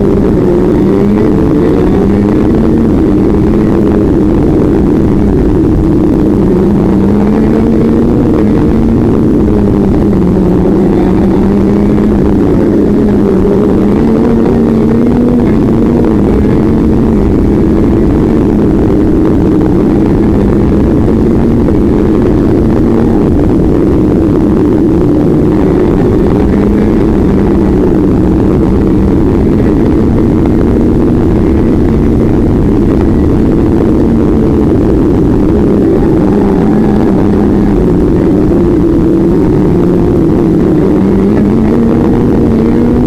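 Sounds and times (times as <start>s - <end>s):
rushing noise: 0.0s - 43.0s
vehicle engine running: 0.0s - 43.0s.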